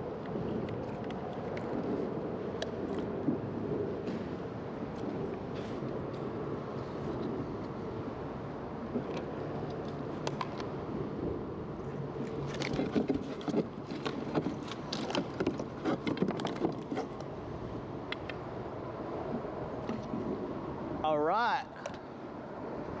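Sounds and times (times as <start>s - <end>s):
knocks and clatter on a kayak: 12.2s - 17.3s.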